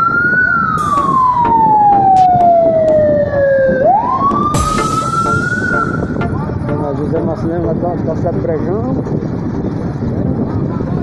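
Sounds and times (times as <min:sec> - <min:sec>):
wailing siren: 0:00.0 - 0:07.4.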